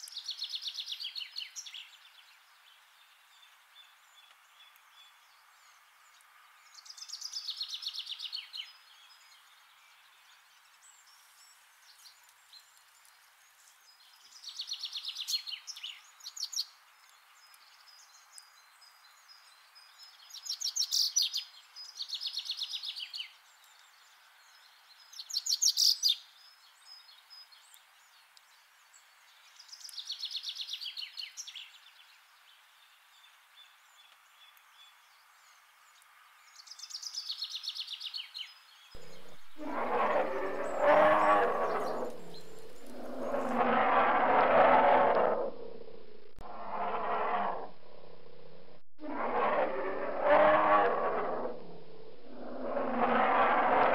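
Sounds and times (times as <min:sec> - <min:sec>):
faint steady hiss: 0:00.0 - 0:44.3
bird trilling: 0:39.0 - 0:44.4.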